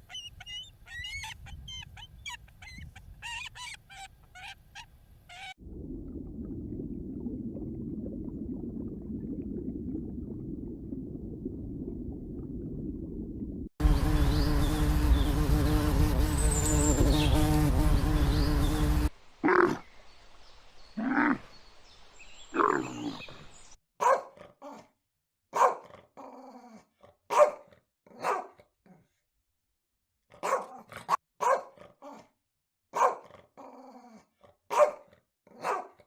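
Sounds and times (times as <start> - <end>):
dog barking: 24.0 - 24.9, 25.5 - 26.0, 27.3 - 28.6, 30.3 - 32.3, 32.9 - 33.4, 34.7 - 36.0.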